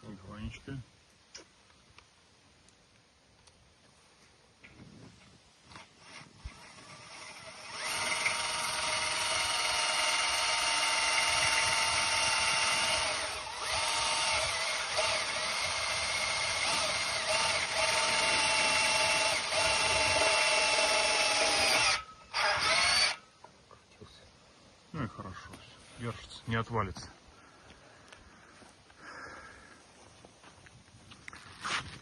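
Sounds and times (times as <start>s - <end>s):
electric drill driving a screw: 6.0s - 23.2s.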